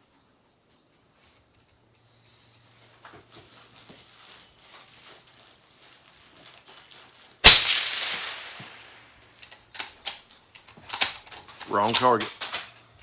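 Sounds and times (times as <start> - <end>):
rifle shot with echo: 7.4 - 9.0.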